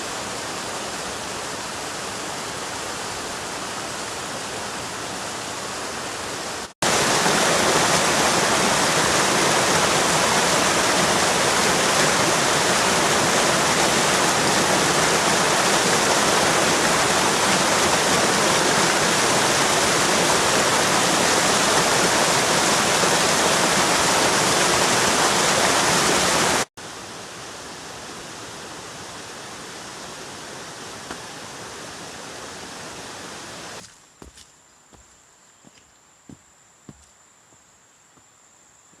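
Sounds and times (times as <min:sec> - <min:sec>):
heavy rain with wind: 0:00.0 - 0:33.8.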